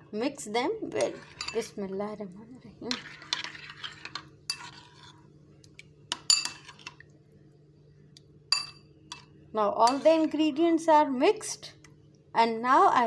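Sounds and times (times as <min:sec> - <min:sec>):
soft stirring: 0:00.8 - 0:10.7
spoon clinking against bowl: 0:01.0 - 0:01.7, 0:06.1 - 0:06.8, 0:08.5 - 0:10.4.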